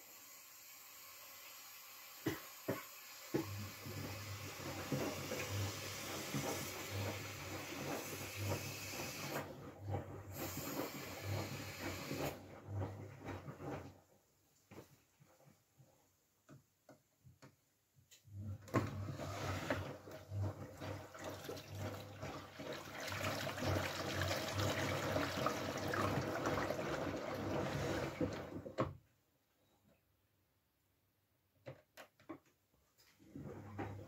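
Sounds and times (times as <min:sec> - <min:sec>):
washing machine filling with water: 0:00.0 - 0:14.2, 0:18.3 - 0:29.0, 0:33.2 - 0:34.0.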